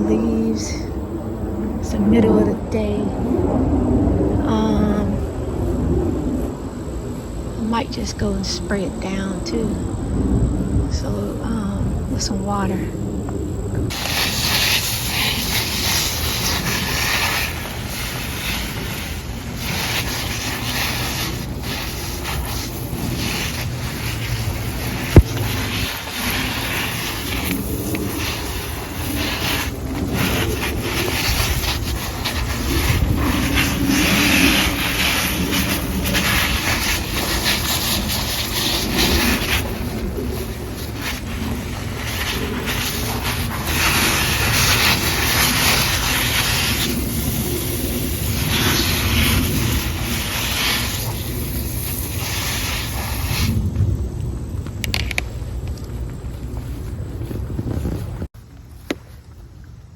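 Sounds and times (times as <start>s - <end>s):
garden hose spraying water: 13.9s - 54.2s.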